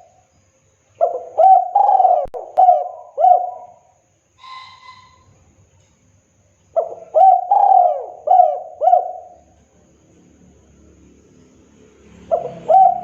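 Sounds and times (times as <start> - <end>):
dove cooing: 1.0 - 5.2, 6.8 - 9.6, 12.2 - 13.0
faint short whistled note: 4.4 - 5.5.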